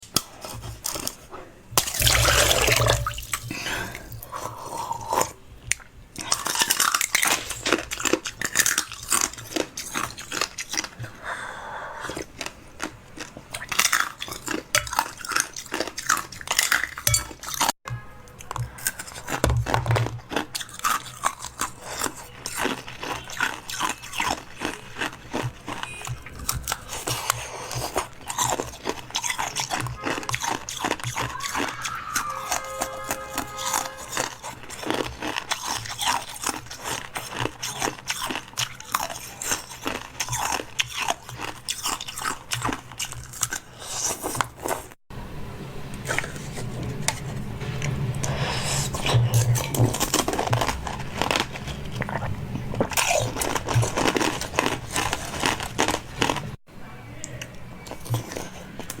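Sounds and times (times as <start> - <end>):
crunchy chewing: 0.0 - 45.0, 46.0 - 56.6, 57.2 - 59.0.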